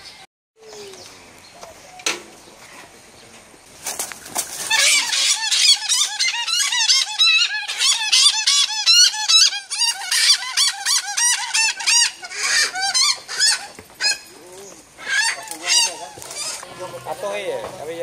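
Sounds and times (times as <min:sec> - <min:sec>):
bird squawking in distress: 0:04.6 - 0:17.2.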